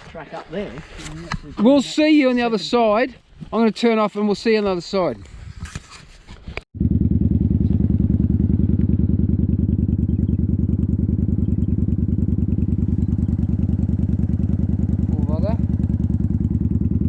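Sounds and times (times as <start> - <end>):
motorcycle engine running: 6.8 - 17.0.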